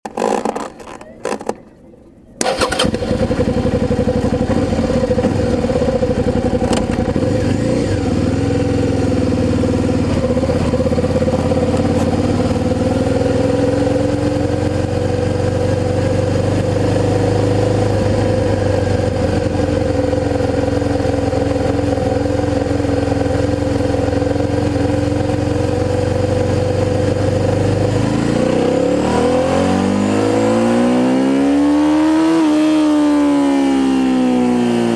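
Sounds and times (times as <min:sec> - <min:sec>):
motorcycle engine idling: 0:02.4 - 0:28.1
motorcycle engine revving: 0:02.4 - 0:34.9
motorcycle engine starting: 0:02.4 - 0:34.9.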